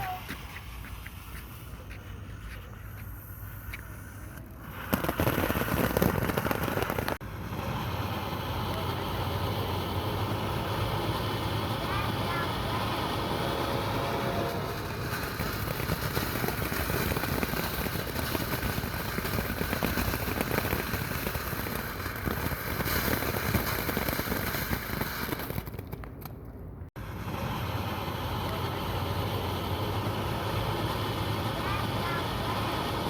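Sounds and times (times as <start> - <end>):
firework crackling: 0.0 - 33.0.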